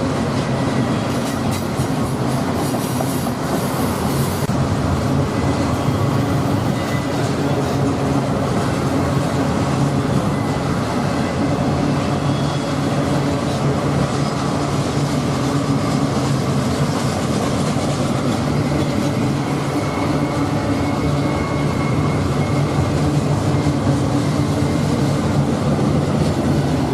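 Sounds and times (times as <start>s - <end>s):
train wheels on rails: 0.0s - 26.9s.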